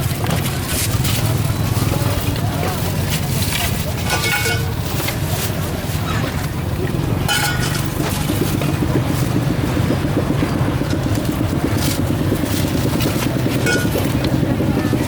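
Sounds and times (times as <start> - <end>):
small engine running: 4.9 - 15.0.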